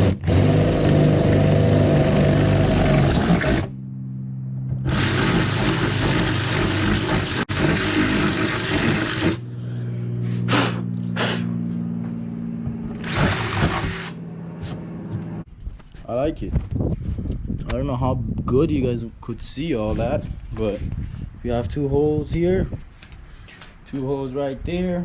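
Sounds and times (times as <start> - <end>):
electric drill boring through metal: 0.0 - 3.7, 4.9 - 9.5, 13.0 - 14.2.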